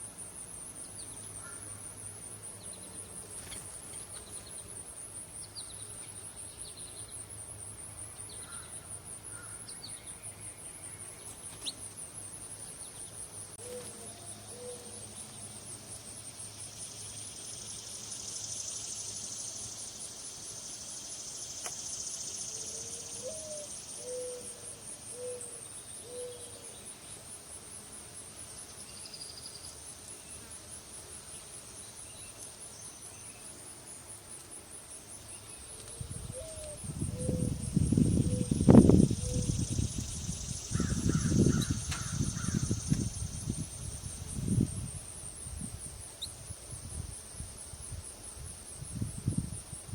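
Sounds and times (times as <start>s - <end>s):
insects trilling: 0.0s - 49.9s
bird hooting or cooing: 13.6s - 15.0s, 23.2s - 26.6s, 36.3s - 37.6s, 38.2s - 38.6s.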